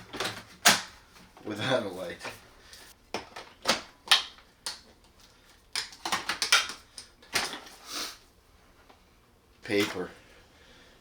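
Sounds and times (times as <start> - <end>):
plastic vacuum parts clicking: 5.7 - 7.7.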